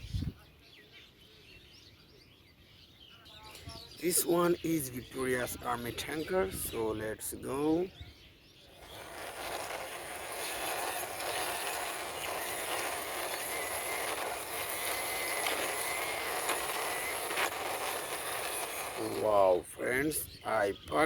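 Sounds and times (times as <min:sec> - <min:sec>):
plastic toy wheels rolling: 0:08.7 - 0:20.2.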